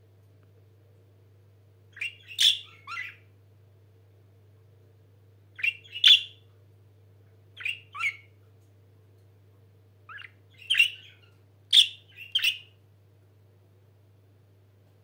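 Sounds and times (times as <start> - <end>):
budgerigars chirping: 2.0 - 3.2, 5.6 - 6.4, 7.6 - 8.3, 10.1 - 12.7.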